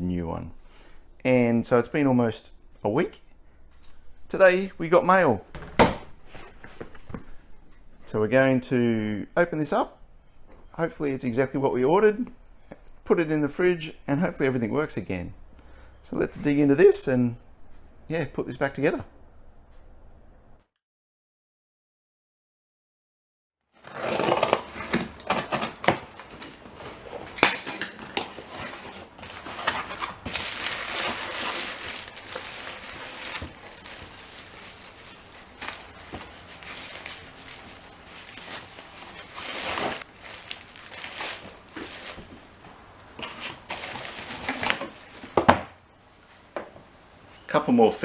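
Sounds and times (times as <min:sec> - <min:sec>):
packaging rustling and crinkling: 0:04.8 - 0:07.6, 0:23.8 - 0:27.4, 0:28.0 - 0:45.6.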